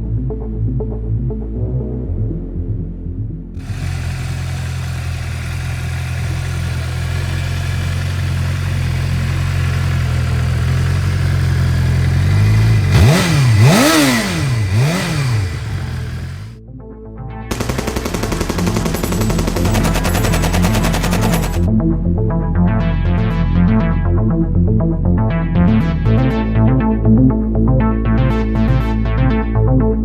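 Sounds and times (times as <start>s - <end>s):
rapid repeating clatter: 3.6s - 16.5s, 17.5s - 21.7s
motorcycle engine idling and revving: 3.6s - 16.6s, 17.5s - 21.7s.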